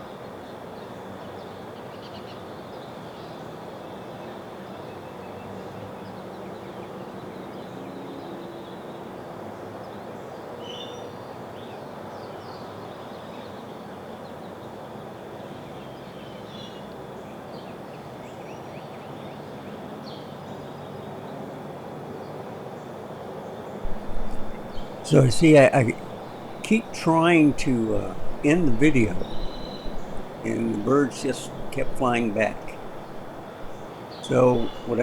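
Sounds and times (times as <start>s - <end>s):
outdoor background hum: 23.8s - 35.0s.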